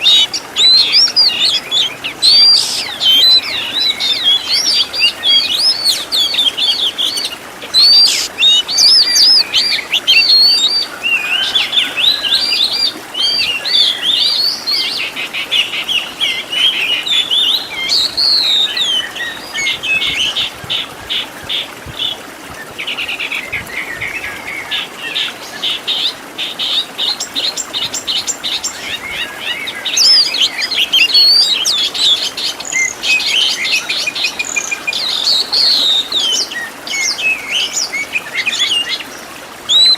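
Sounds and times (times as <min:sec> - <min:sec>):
bird singing whistles and trills: 0:00.0 - 0:39.0, 0:39.7 - 0:39.9.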